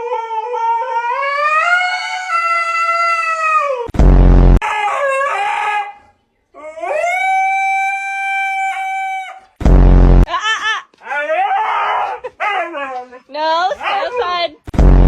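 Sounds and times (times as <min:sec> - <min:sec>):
dog howling: 0:00.0 - 0:03.9, 0:04.6 - 0:09.5
loud low buzzing blast: 0:03.9 - 0:04.6, 0:09.6 - 0:10.3, 0:14.7 - 0:15.0.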